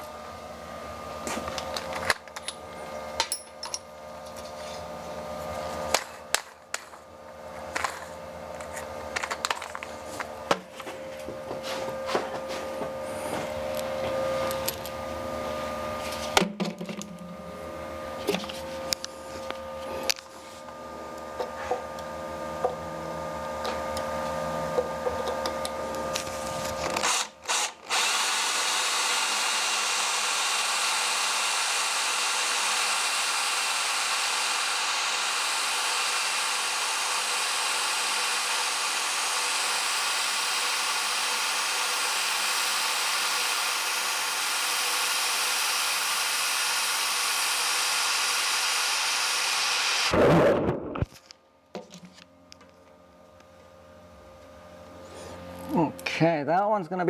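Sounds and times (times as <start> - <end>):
electric drill running: 18.9 - 50.2
whirring hiss: 27.6 - 50.1.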